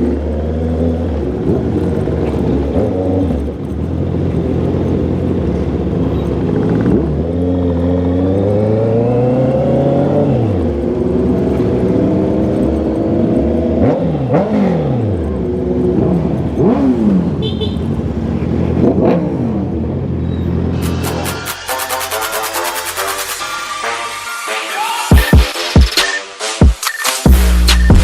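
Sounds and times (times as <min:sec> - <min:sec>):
motorcycle engine revving: 0:00.0 - 0:21.8.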